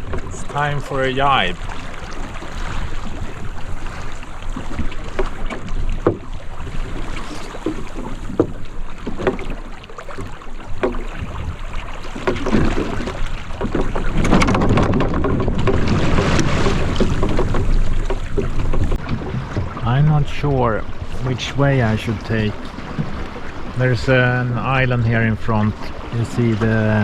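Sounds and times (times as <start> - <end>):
water rushing along hull: 0.0 - 27.0
wind buffeting microphone: 0.0 - 27.0
short knocks: 4.6 - 6.3, 7.3 - 27.0.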